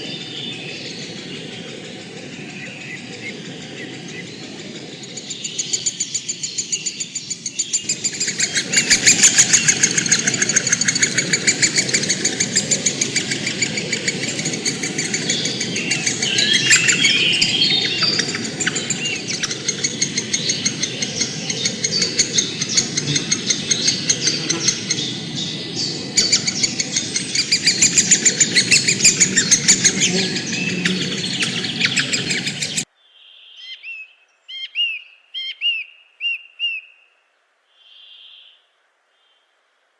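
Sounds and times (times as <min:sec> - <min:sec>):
low rushing noise: 0:00.0 - 0:32.8
birds chirping and chattering: 0:00.0 - 0:32.9
bird whistling: 0:05.1 - 0:32.8.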